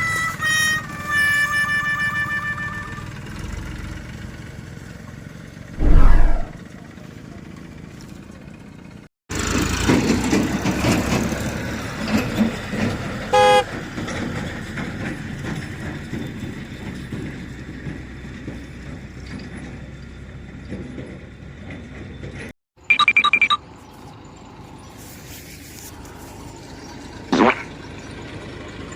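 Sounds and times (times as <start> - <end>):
short horn toot: 0.0 - 3.3, 5.8 - 6.6, 13.4 - 13.7
vehicle engine running: 0.0 - 22.3, 23.6 - 28.9.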